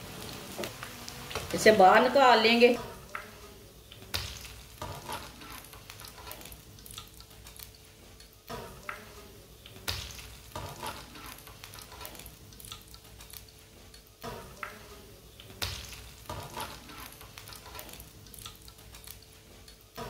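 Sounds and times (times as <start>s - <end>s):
fritters sizzling in hot oil: 0.0s - 20.0s.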